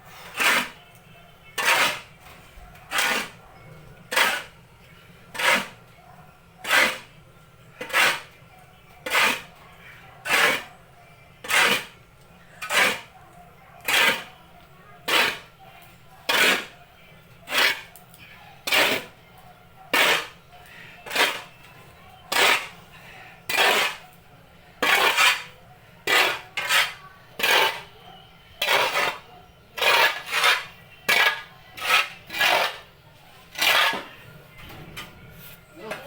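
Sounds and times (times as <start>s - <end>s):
hand scraping sawdust mixture: 0.1s - 0.9s, 1.6s - 2.2s, 2.8s - 3.4s, 4.1s - 4.6s, 5.3s - 5.8s, 6.6s - 7.1s, 7.8s - 8.4s, 9.0s - 9.5s, 10.2s - 10.7s, 11.4s - 12.0s, 12.6s - 13.1s, 13.8s - 14.3s, 15.0s - 15.5s, 16.3s - 16.7s, 17.5s - 18.0s, 18.6s - 19.1s, 19.9s - 21.6s, 22.3s - 22.8s, 23.5s - 24.1s, 24.8s - 27.9s, 28.6s - 32.9s, 33.5s - 34.1s.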